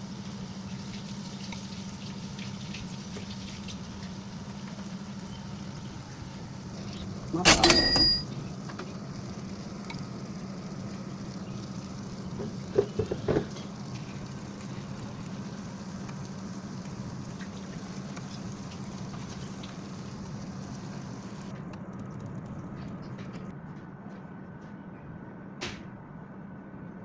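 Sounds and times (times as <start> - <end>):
chicken frying in hot oil: 0.0 - 23.5.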